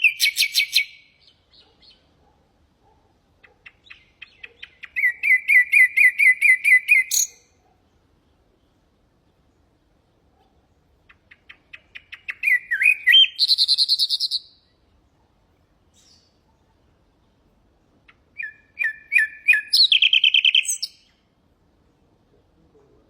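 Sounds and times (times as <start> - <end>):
nightingale singing: 0.0 - 2.2, 3.4 - 7.6, 10.7 - 14.9, 15.9 - 16.4, 18.1 - 21.3.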